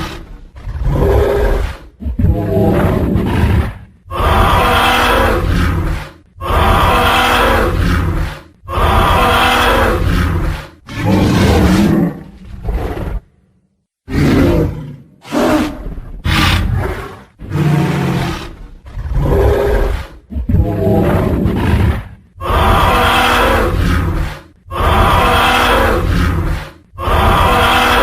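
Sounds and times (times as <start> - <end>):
deep rough monster roars: 0.0 - 13.3, 14.1 - 28.0.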